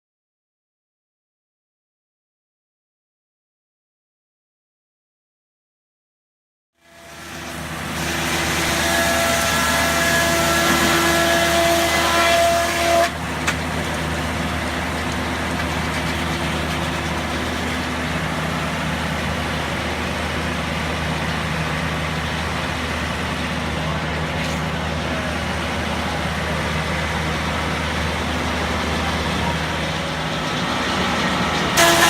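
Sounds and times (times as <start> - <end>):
high-pitched machine whine: 6.8 - 32.0
sawmill machinery drone: 6.8 - 32.0.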